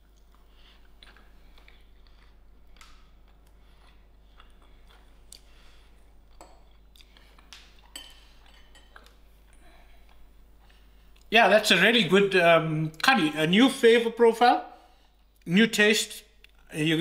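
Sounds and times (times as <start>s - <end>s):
faint chewing: 0.0s - 11.3s.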